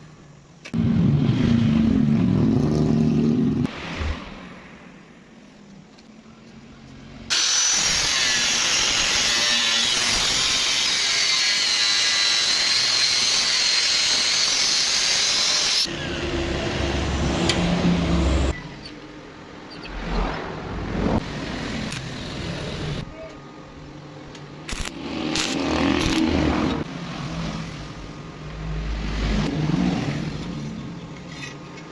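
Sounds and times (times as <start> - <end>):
power cutting tool cutting: 7.3 - 16.8.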